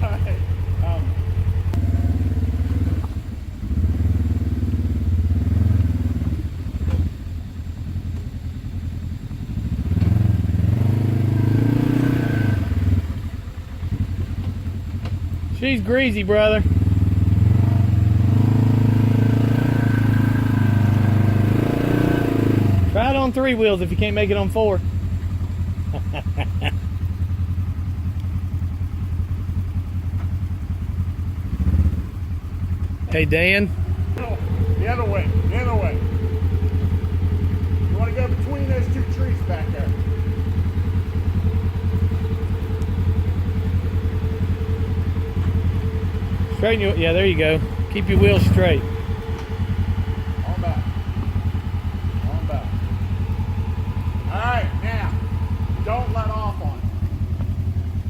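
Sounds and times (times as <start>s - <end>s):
engine revving hard: 1.7s - 6.5s, 9.6s - 13.2s, 16.0s - 24.4s, 31.4s - 32.1s, 33.1s - 57.5s.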